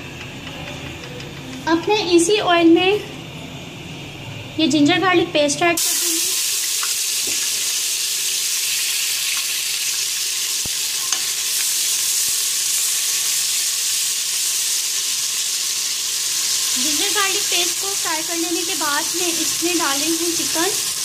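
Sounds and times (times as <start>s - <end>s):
paste sizzling in hot oil: 5.8s - 21.0s.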